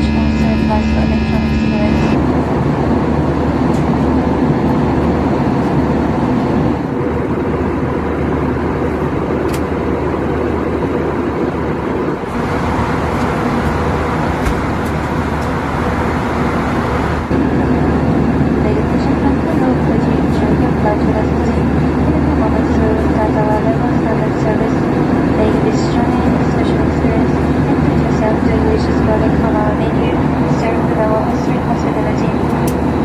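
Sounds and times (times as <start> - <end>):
low hum: 0.0 - 24.8
airliner cabin engine drone: 0.0 - 33.0.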